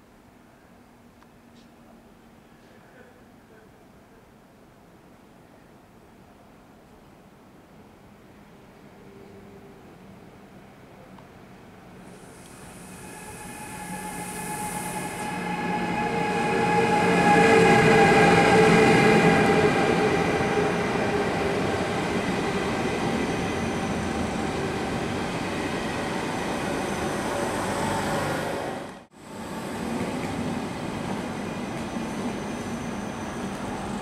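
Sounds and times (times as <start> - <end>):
electric train passing: 11.6 - 34.0.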